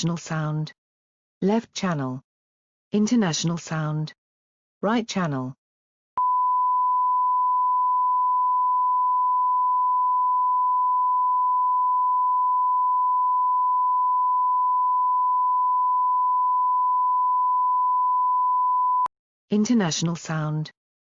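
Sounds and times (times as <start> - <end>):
sine wave test tone: 6.2 - 19.1.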